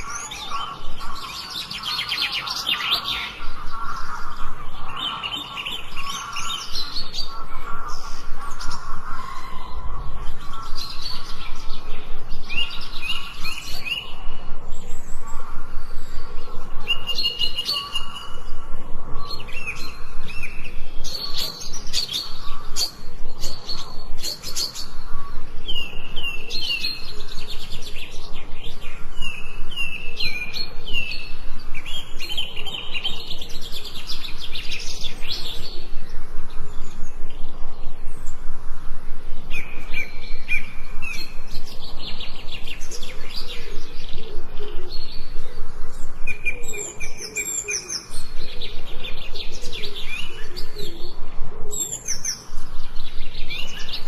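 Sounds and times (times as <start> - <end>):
songbirds whistling: 0.0 - 54.0.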